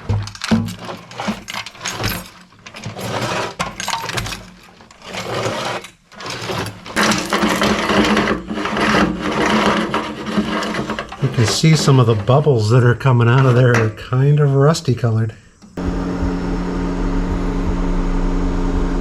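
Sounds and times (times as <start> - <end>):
chain rattling inside metal tank: 0.0 - 14.2.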